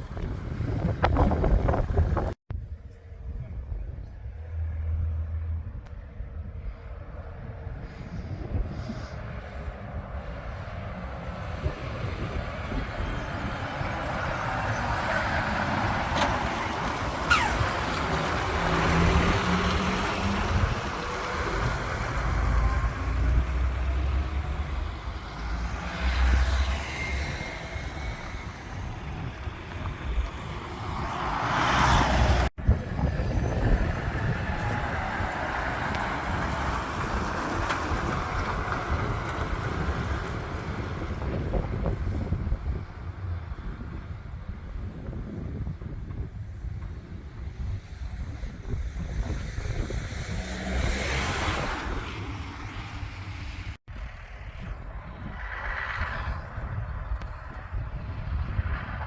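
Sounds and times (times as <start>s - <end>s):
steady lorry rumble: 0.0s - 59.0s
lorry driving past: 10.9s - 32.5s.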